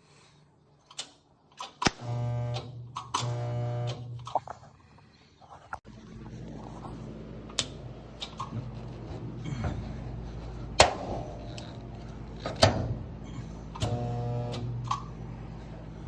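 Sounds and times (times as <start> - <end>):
spot welder clacking: 0.9 - 4.5, 7.5 - 15.2
steady low hum: 2.0 - 16.0.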